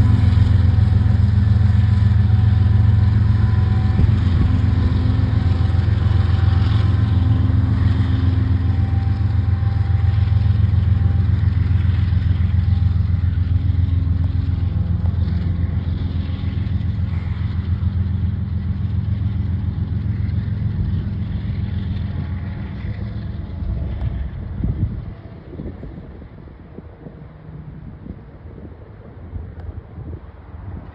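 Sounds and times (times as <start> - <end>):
freight train wheels clattering: 0.0 - 25.4
train low rumble: 0.0 - 30.9.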